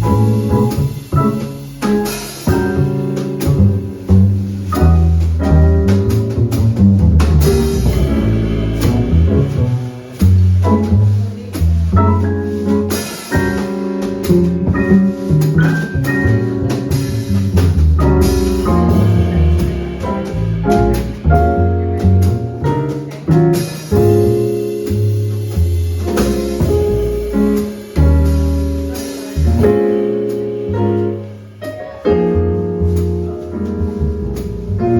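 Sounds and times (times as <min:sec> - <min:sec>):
cymbals and drums: 0:00.0 - 0:31.2
bass notes: 0:00.0 - 0:34.9
piano: 0:00.0 - 0:34.9.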